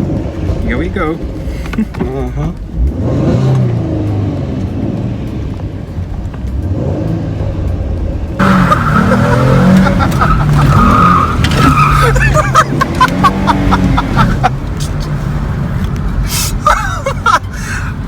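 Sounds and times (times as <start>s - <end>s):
car engine running: 0.0s - 18.0s
loud tyre squeal: 8.4s - 12.6s.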